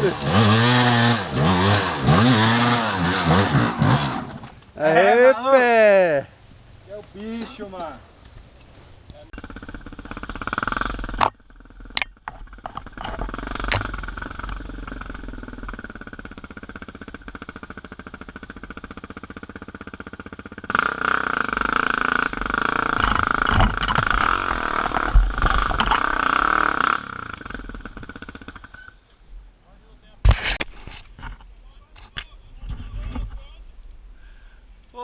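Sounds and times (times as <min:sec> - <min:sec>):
dirt bike engine revving: 0:00.0 - 0:06.2, 0:09.3 - 0:29.0.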